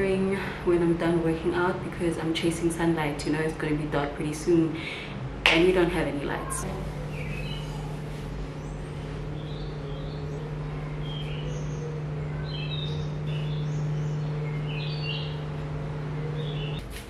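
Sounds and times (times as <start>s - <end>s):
steady low hum: 0.0s - 17.0s
birds chirping: 6.3s - 16.8s.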